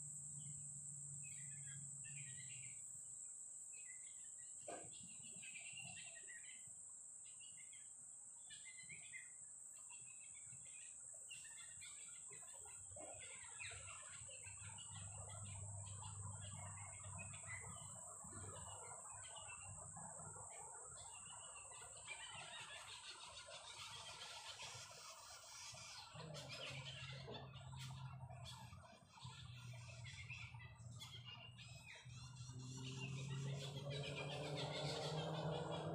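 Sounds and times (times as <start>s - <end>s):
high-pitched insect drone: 0.0s - 6.6s
birds chirping and calling: 1.2s - 2.8s, 3.7s - 6.7s, 7.3s - 35.9s.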